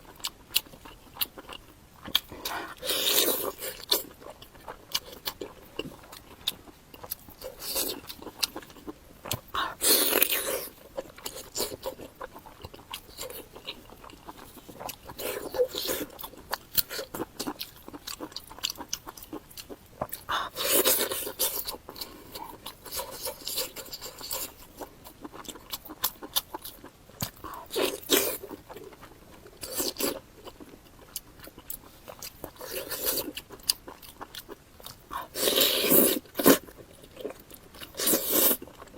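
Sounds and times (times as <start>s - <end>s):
person chewing and crunching food: 0.0s - 38.9s.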